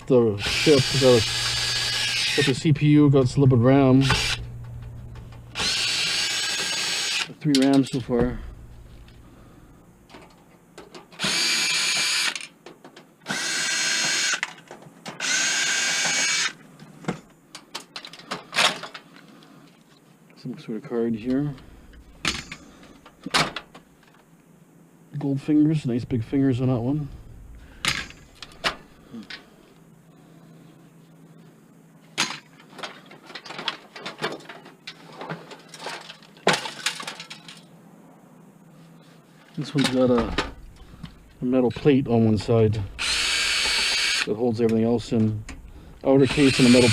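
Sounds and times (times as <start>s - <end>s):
power drill running: 0.4s - 2.6s, 4.0s - 4.5s, 5.5s - 7.3s, 11.2s - 12.4s, 13.3s - 14.4s, 15.2s - 16.6s, 43.0s - 44.3s, 46.2s - 46.9s
computer case parts clicking and rattling: 32.2s - 37.7s.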